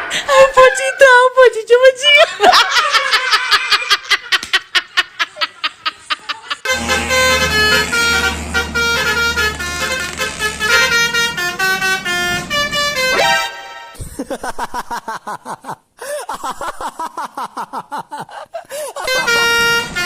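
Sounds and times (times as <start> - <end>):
low hum: 6.7 - 13.1
multi-tone bus horn melody: 6.7 - 14.0, 19.1 - 20.0.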